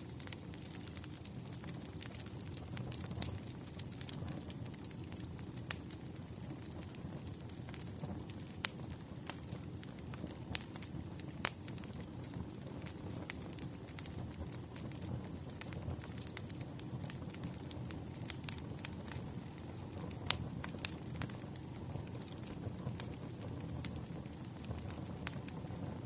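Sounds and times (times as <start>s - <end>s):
firewood crackling: 0.0s - 26.0s.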